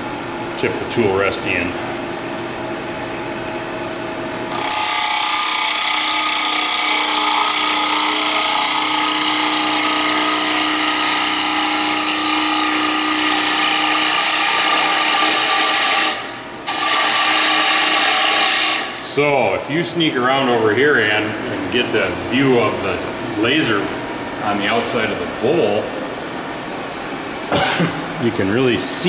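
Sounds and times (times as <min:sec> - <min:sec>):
tool cutting wood with ringing hiss: 0:04.5 - 0:19.0
wood lathe spinning: 0:04.5 - 0:19.0.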